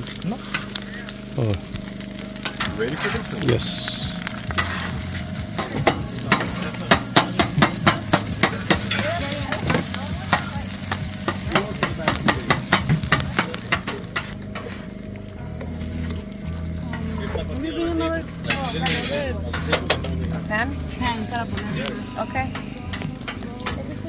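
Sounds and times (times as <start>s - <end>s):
eggs sizzling in frying pan: 0.0s - 17.8s
metal utensil scraping pan: 4.3s - 14.9s, 18.4s - 20.1s.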